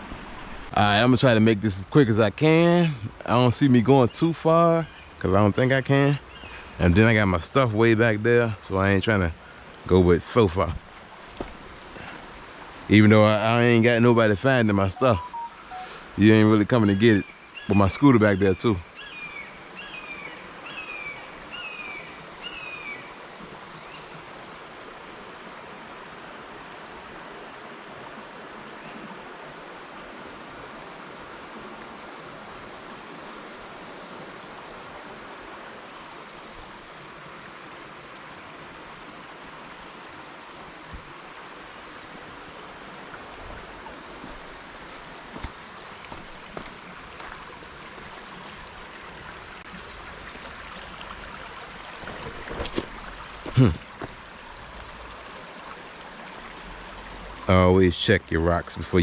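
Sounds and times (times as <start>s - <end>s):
creek water over rocks: 0.0s - 59.0s
bird chirping: 15.0s - 16.0s.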